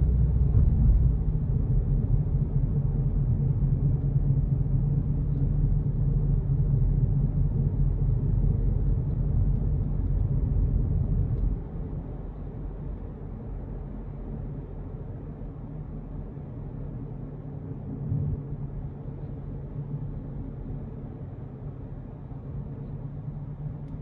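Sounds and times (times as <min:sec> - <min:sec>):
car road noise: 0:00.0 - 0:03.6
low steady hum: 0:00.0 - 0:24.0.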